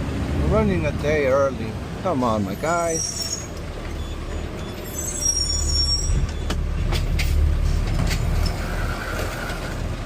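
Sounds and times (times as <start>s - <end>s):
garbage truck engine rumbling: 0.0s - 10.0s
high squeal: 2.6s - 6.5s
sharp clicks and knocks: 6.2s - 8.6s.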